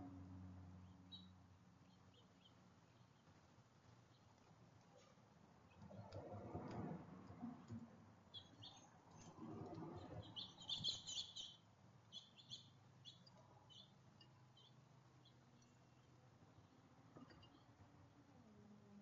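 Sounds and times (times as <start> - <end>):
small birds chirping: 0.8 - 5.9, 8.2 - 17.8.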